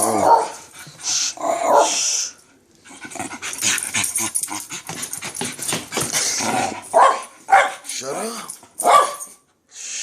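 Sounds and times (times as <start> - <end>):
dog scuffling with clicks: 3.5 - 7.0.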